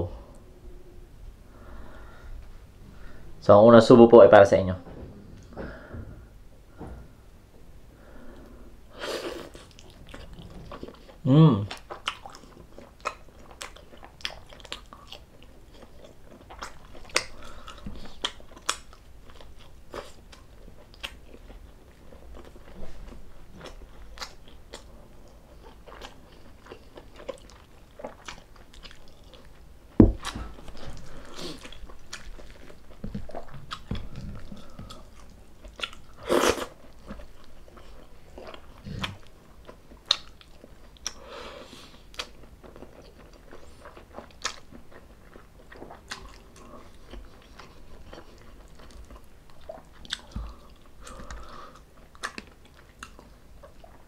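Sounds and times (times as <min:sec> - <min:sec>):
chewing and biting: 0:09.5 - 0:22.8, 0:23.6 - 0:41.2, 0:42.1 - 0:54.0.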